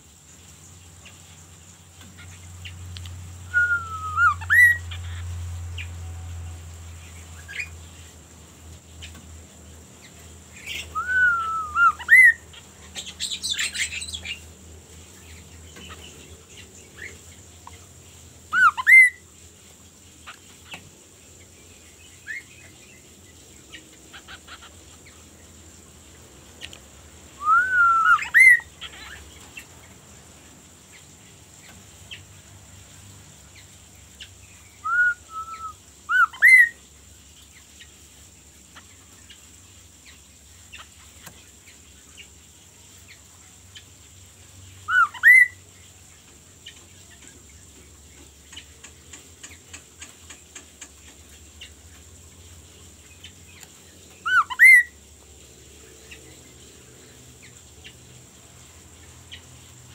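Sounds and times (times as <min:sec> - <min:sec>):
bird whistled calls: 0:03.4 - 0:04.8, 0:10.7 - 0:12.4, 0:18.5 - 0:19.2, 0:27.4 - 0:28.7, 0:34.8 - 0:36.8, 0:44.9 - 0:45.6, 0:54.2 - 0:55.0.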